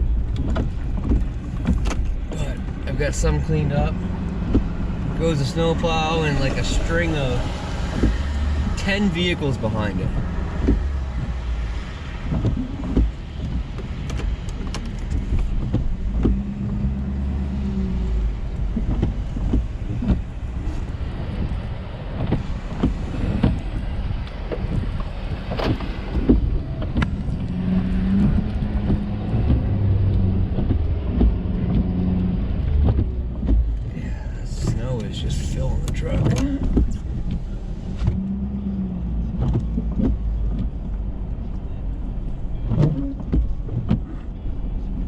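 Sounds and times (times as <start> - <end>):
truck engine and road rumble: 0.0 - 45.0
knocks and thumps: 4.3 - 5.2, 10.1 - 11.5, 12.2 - 16.9, 18.5 - 20.4, 22.2 - 23.8, 32.8 - 38.2.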